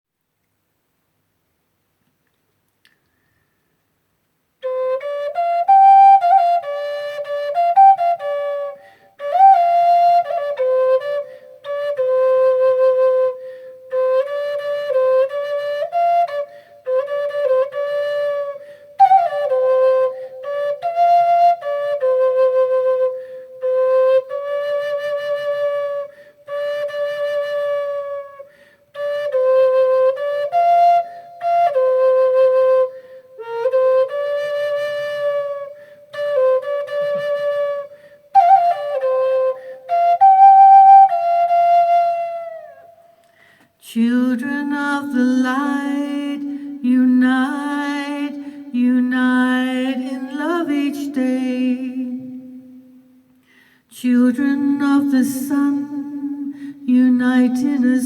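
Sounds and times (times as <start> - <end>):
flute playing slow melody: 4.6 - 43.3
player breathing: 43.2 - 43.8, 53.4 - 53.9.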